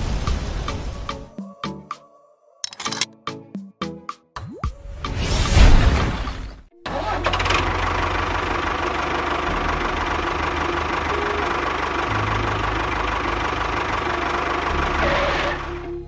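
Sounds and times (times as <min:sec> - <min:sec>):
small engine idling with knocking: 0:07.2 - 0:15.8.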